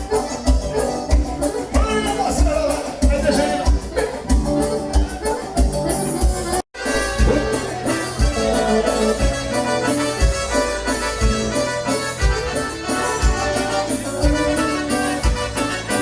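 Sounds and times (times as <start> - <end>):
accordion dance-band music: 0.0 - 16.0
bass drum thumps: 3.0 - 8.3.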